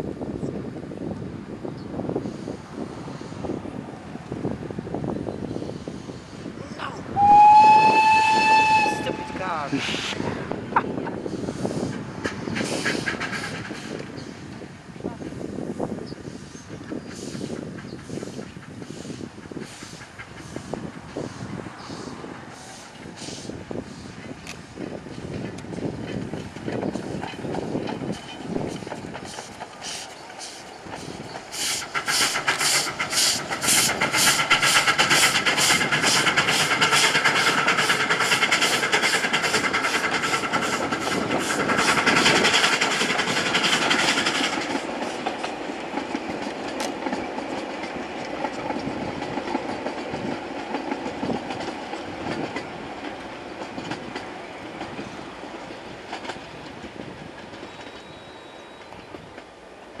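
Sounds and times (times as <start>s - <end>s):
train running rumble: 0.0s - 60.0s
train rhythmic beat: 25.3s - 56.4s.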